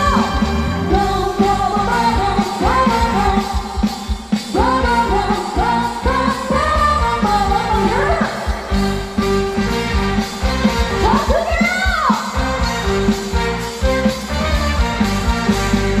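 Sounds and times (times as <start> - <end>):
drums: 0.0 - 16.0
pop-rock band playing: 0.0 - 16.0
sliding lead melody: 4.6 - 11.6, 12.3 - 16.0.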